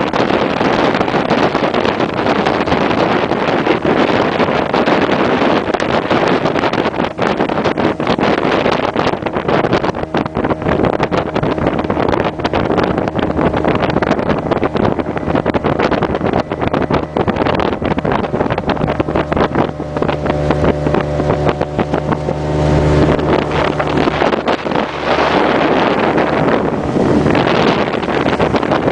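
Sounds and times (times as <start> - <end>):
outboard engine drone: 0.0 - 28.9
wind buffeting microphone: 0.0 - 28.9.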